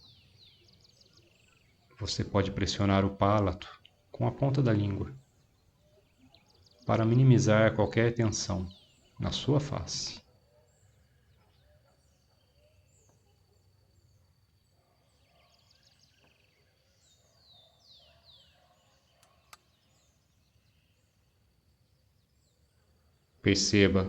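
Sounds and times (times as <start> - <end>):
low background hiss: 0.0 - 11.4, 19.0 - 24.0
distant birds chirping: 0.0 - 24.0.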